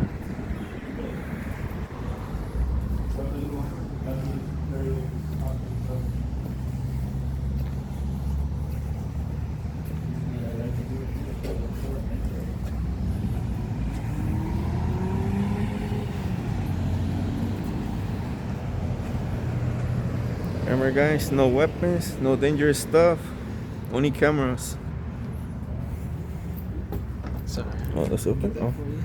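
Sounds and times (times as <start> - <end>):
vehicle accelerating past: 0.0 - 21.4
traffic engine rumble: 0.0 - 29.0.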